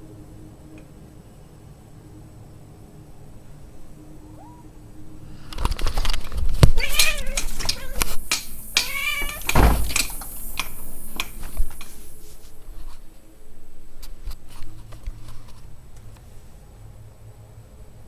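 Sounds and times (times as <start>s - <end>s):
wavering pitched cries: 3.2s - 5.4s, 6.8s - 8.2s, 8.8s - 9.6s
sharp clicks and knocks: 5.6s - 12.0s.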